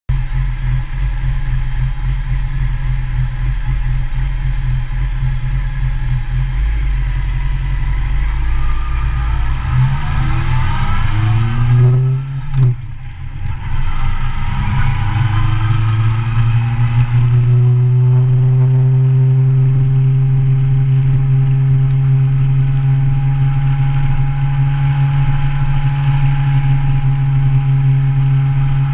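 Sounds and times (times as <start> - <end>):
motorcycle engine pulling away: 6.4 - 20.2.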